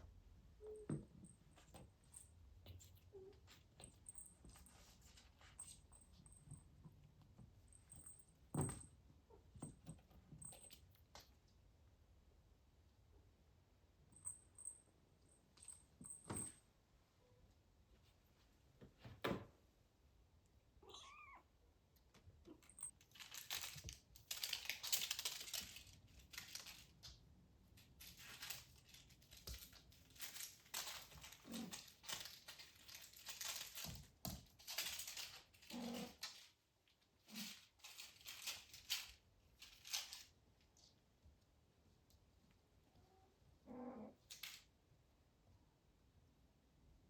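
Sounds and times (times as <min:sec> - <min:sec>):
kitten meowing: 0:20.8 - 0:21.5
paper crinkling and rustling: 0:23.0 - 0:27.1.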